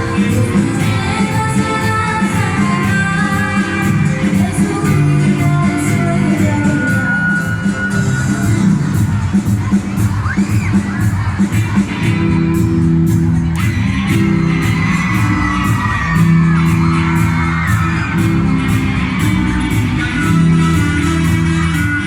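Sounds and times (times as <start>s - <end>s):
people singing along: 0.0s - 7.9s
strummed guitar chords: 0.0s - 22.0s.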